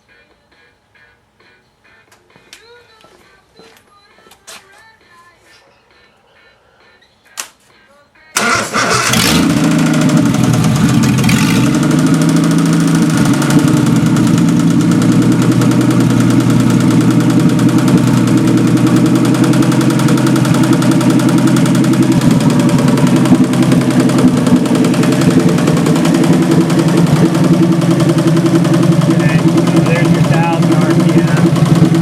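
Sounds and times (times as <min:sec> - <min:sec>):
car engine running: 0:08.4 - 0:32.0.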